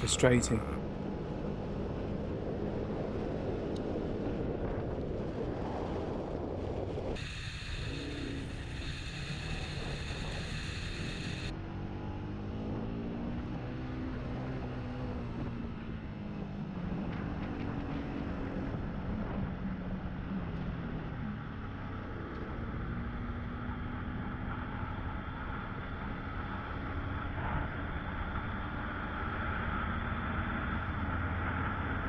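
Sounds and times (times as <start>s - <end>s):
high whine: 7.1s - 11.5s.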